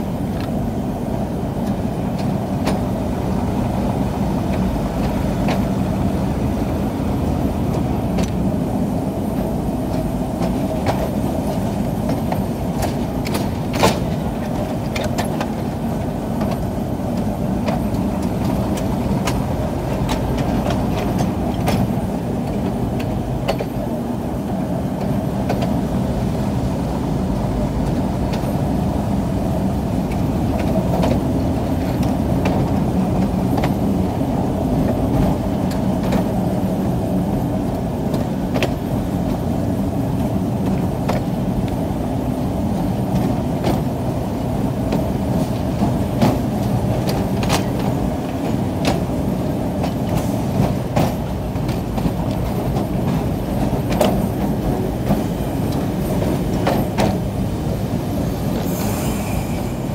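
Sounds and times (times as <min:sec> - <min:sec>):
train rumbling: 0:00.0 - 0:59.9.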